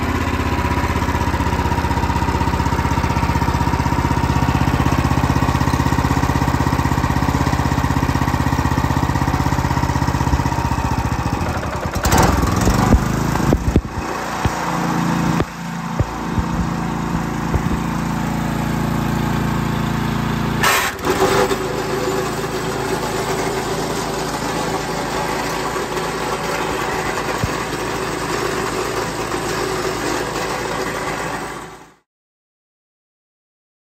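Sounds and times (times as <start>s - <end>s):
small mower engine running: 0.0s - 32.1s
short clattering burst: 20.6s - 21.6s.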